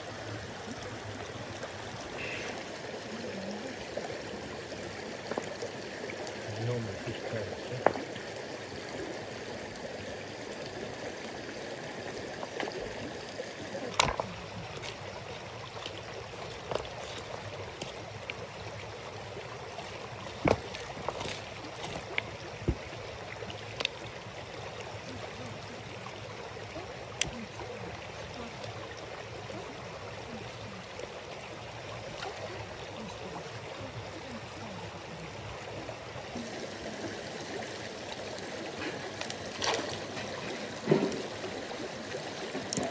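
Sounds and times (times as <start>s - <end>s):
stream rushing: 0.0s - 42.9s
sharp knocks or splashes: 13.9s - 14.3s, 20.3s - 22.9s, 39.6s - 41.4s.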